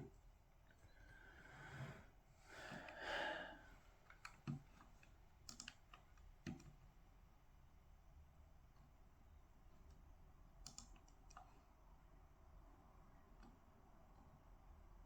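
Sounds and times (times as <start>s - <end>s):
keyboard typing clicks: 5.5s - 6.8s, 10.6s - 11.5s.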